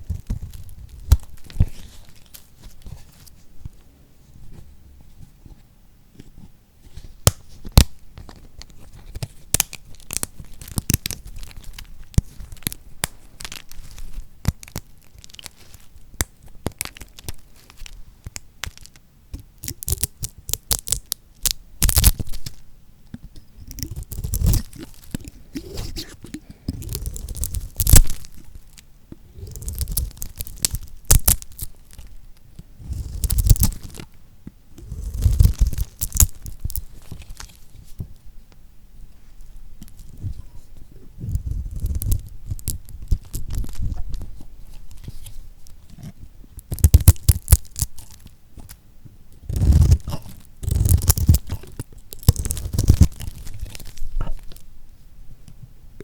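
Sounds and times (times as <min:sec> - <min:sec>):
knife cutting crackly soap: 0:23.6 - 0:28.3, 0:29.4 - 0:32.0, 0:32.8 - 0:34.0, 0:34.8 - 0:37.5, 0:49.4 - 0:54.6.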